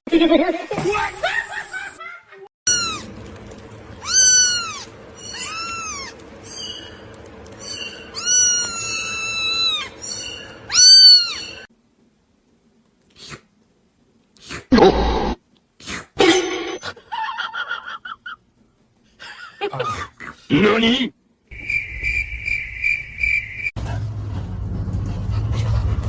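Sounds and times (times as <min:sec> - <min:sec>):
cat meowing: 0:02.7 - 0:03.1, 0:04.0 - 0:06.2, 0:08.0 - 0:11.7.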